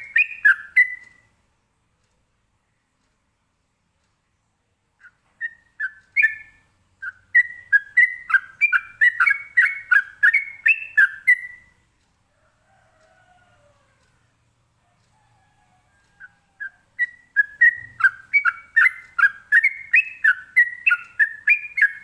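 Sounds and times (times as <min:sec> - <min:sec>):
bird singing whistled notes: 0:00.0 - 0:01.2, 0:05.0 - 0:11.8, 0:16.2 - 0:22.0.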